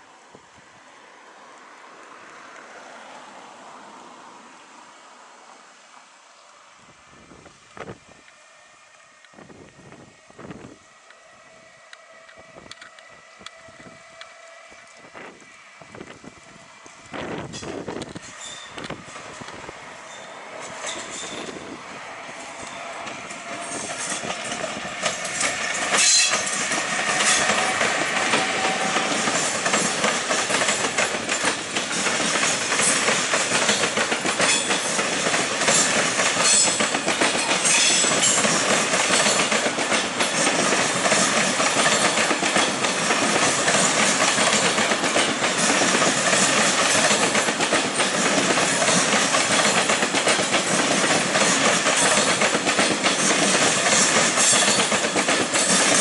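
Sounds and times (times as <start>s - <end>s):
train passing: 0.0s - 56.0s
wheels clattering over rail joints: 17.4s - 21.8s, 22.5s - 56.0s.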